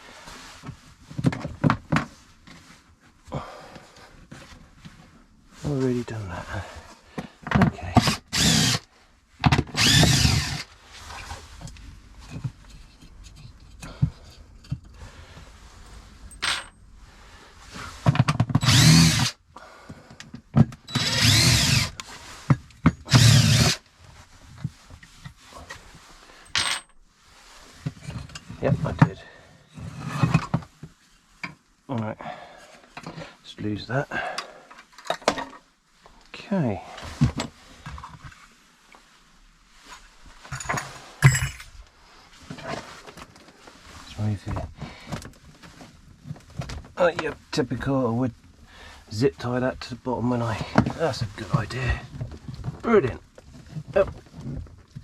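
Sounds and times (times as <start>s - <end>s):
parts being handled and moved: 7.2s - 18.8s, 19.9s - 29.1s, 39.8s - 47.3s
power drill motor whine: 8.0s - 8.9s, 9.7s - 10.7s, 18.6s - 19.3s, 20.9s - 22.0s, 23.0s - 23.8s
sharp metal clank ringing: 16.3s - 16.8s.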